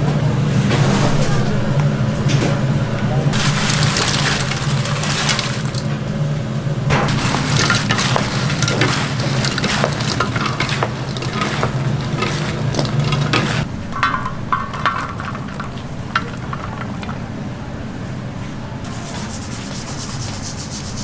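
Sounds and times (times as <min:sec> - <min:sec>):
low hum: 0:00.0 - 0:18.9
food clattering and scraping: 0:03.3 - 0:06.2, 0:06.9 - 0:18.0.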